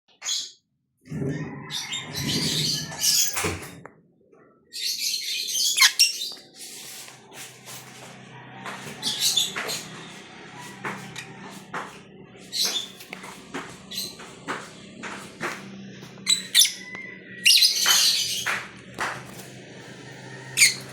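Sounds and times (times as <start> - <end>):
birds chirping: 4.7 - 6.6, 7.8 - 20.9.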